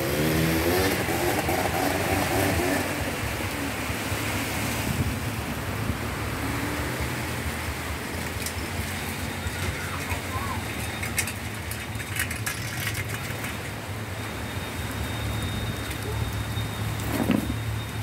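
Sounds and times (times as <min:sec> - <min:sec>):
heavy rain on a dirt road: 0:00.0 - 0:18.0.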